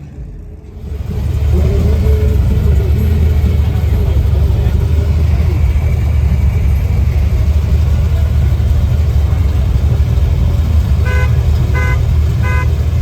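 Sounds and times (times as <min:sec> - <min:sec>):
car engine idling: 0:00.0 - 0:13.0
car horn toots: 0:10.9 - 0:13.0.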